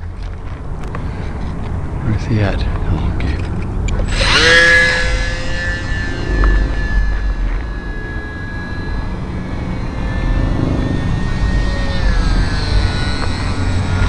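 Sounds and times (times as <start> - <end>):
wind buffeting microphone: 1.8 - 14.0
model airplane motor whining: 3.9 - 14.0.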